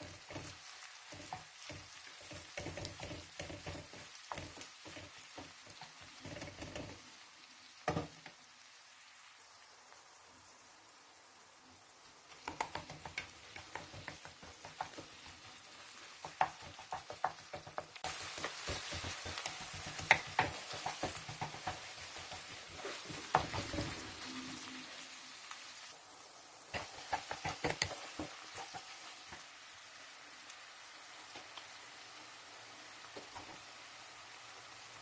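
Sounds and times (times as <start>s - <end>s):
utensil scraping in a pan: 0.0s - 7.3s, 12.5s - 26.0s, 26.7s - 29.5s
food sizzling: 0.0s - 35.0s.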